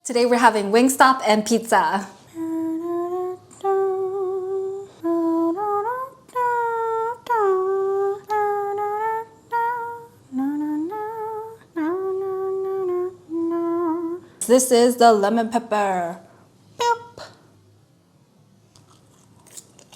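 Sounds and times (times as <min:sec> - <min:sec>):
woman humming a tune: 0:02.3 - 0:14.3.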